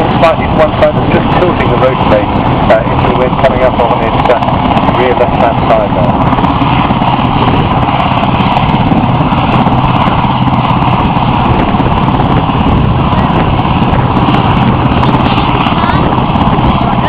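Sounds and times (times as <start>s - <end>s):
helicopter rotor pulsing drone: 0.0s - 17.0s.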